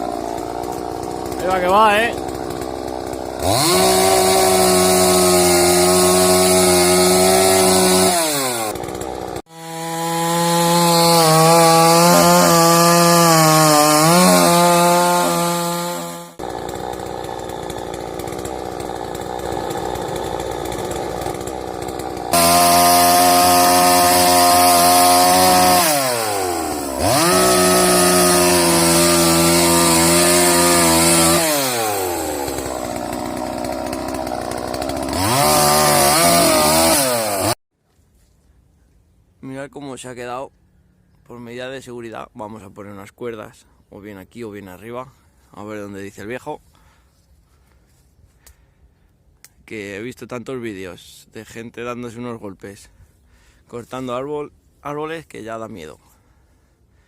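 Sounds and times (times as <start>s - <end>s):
chainsaw cutting wood: 0.0s - 37.6s.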